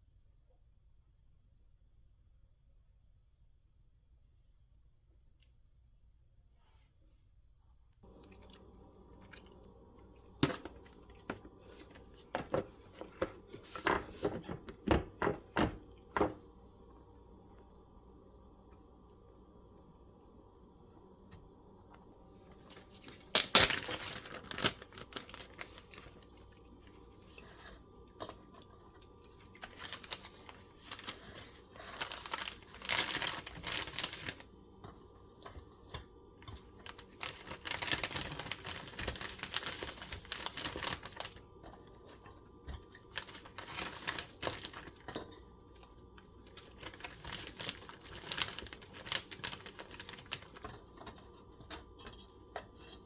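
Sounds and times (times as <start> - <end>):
crinkling and tearing: 22.5 - 34.5, 36.5 - 41.4, 42.1 - 45.2, 46.1 - 51.3.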